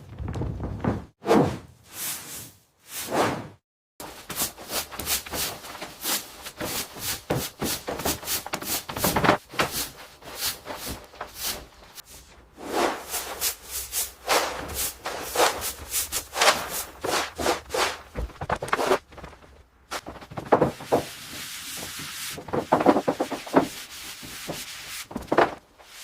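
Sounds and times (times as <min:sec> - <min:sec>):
stiff brush scraping hard surface: 0:04.0 - 0:25.6.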